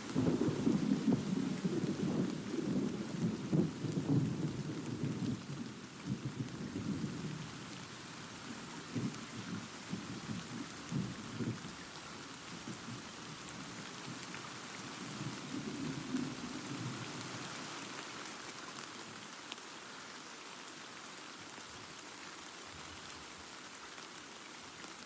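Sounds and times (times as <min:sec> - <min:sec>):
thunder rumbling and crackling: 0:00.0 - 0:11.8, 0:12.5 - 0:17.6
steady rain: 0:00.0 - 0:25.0.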